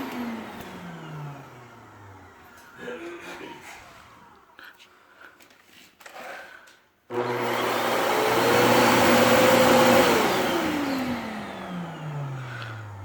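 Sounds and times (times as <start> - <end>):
vacuum motor winding down: 0.0 - 2.9, 7.1 - 13.0
vacuum cleaner running: 0.0 - 4.8, 7.1 - 13.0.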